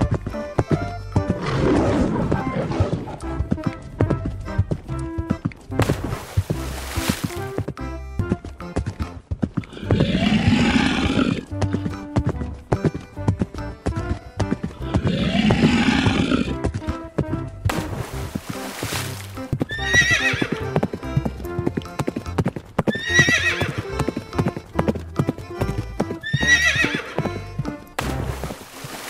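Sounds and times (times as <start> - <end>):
clip-clop hoofbeats: 0.0 - 29.0
horse neighing: 1.2 - 3.4, 9.6 - 11.9, 14.7 - 16.6, 19.6 - 20.8, 22.9 - 24.1, 26.2 - 27.4
background music with steady beat: 3.2 - 9.3, 11.5 - 15.2.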